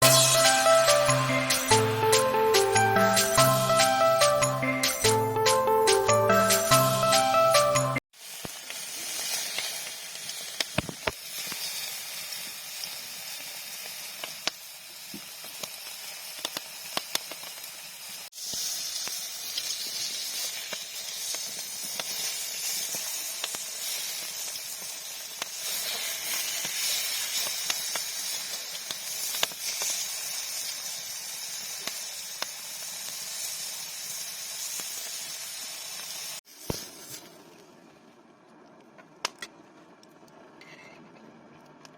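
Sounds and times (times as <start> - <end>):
beef sizzling on a grill: 0.0 - 2.0, 8.1 - 37.3
fat popping and crackling: 9.5 - 11.6, 25.4 - 30.0.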